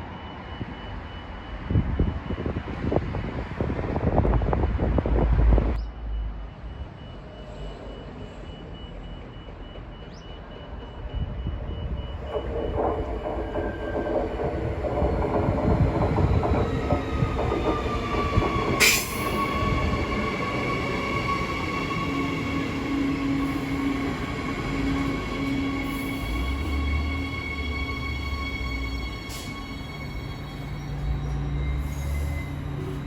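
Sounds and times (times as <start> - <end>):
train wheels rumbling on rails: 10.5 - 33.0.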